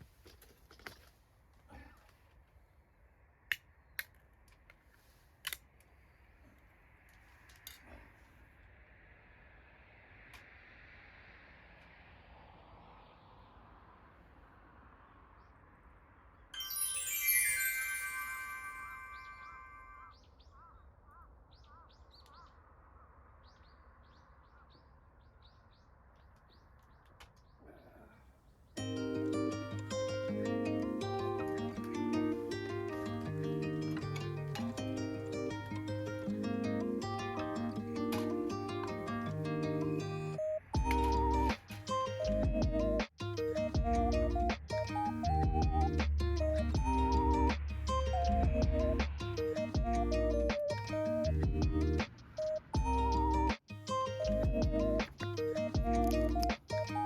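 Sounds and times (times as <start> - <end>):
small birds chirping: 19.0 - 57.0.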